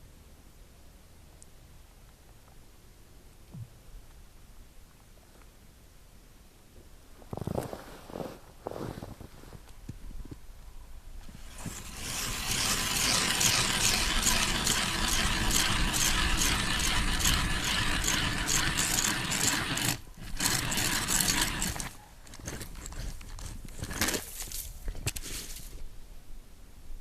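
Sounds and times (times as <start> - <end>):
hand ice auger drilling ice: 11.2 - 25.6.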